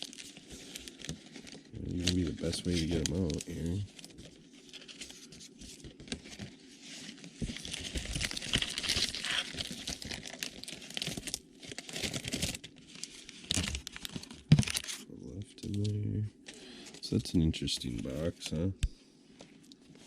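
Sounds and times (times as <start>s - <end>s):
cardboard box and packs rustling: 0.0s - 15.0s.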